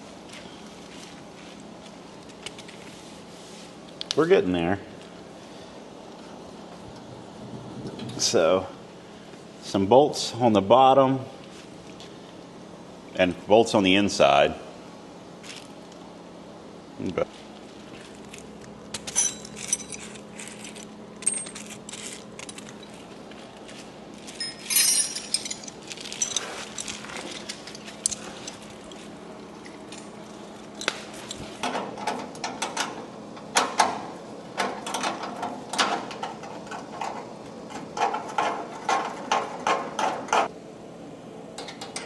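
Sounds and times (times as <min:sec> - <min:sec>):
metallic clinks: 0:19.0 - 0:23.1, 0:24.3 - 0:28.6.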